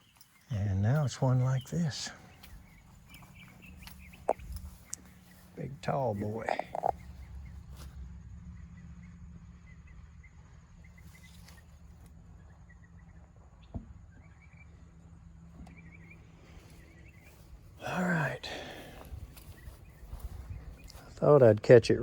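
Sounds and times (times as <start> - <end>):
steady low hum: 0.0 - 22.0
small animals chirping: 1.6 - 7.6.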